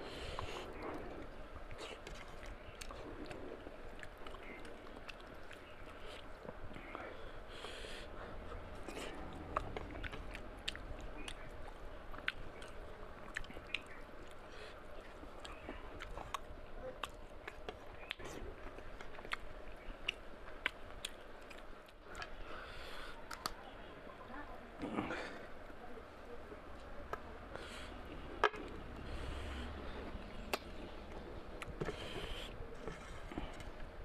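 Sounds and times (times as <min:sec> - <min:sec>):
chewing and lip-smacking: 0:00.3 - 0:07.0, 0:08.6 - 0:22.4, 0:28.6 - 0:33.7
wet mouth clicks: 0:30.4 - 0:30.8.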